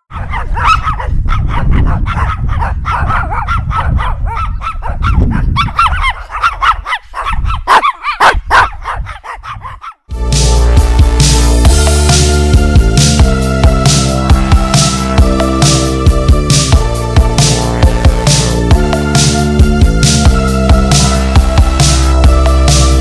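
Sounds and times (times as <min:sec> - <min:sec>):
dogs barking rapidly: 0:00.0 - 0:10.1
electronic music: 0:10.1 - 0:23.0.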